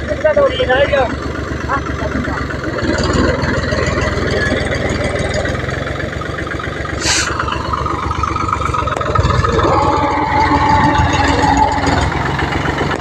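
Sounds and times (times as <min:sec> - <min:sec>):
tractor engine chugging: 0:00.0 - 0:13.0
short hiss: 0:07.0 - 0:07.4
high whine: 0:07.0 - 0:13.0.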